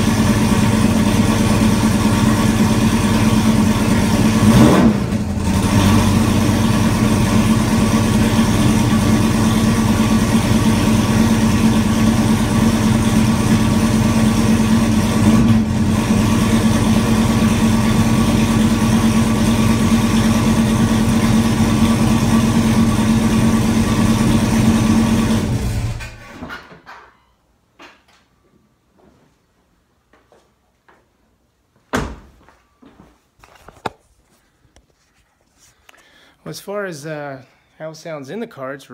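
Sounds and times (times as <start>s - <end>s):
loud car engine idling: 0.0s - 26.0s.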